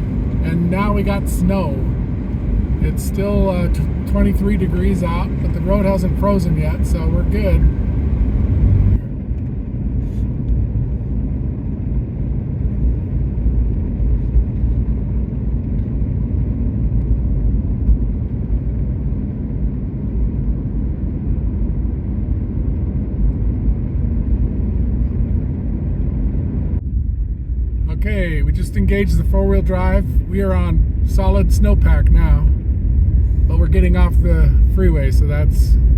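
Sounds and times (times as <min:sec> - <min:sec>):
car engine and tyre road noise: 0:00.0 - 0:35.9.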